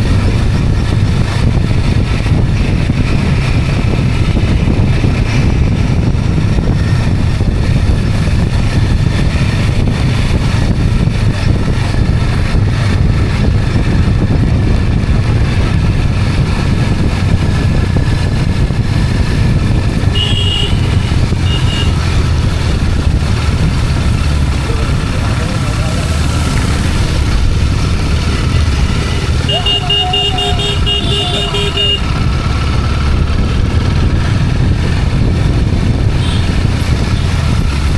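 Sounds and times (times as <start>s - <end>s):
motorbike engine running: 0.0s - 37.9s
road and wind noise: 0.0s - 37.9s
high horn beeps: 20.1s - 22.0s, 29.4s - 32.3s.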